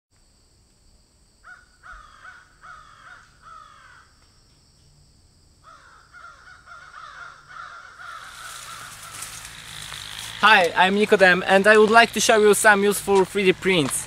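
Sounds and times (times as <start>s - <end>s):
bird calling: 5.7s - 10.4s.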